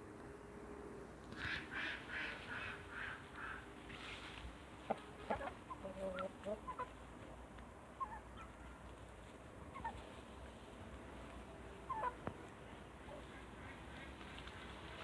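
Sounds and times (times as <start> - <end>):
chickens clucking: 1.3 - 15.0.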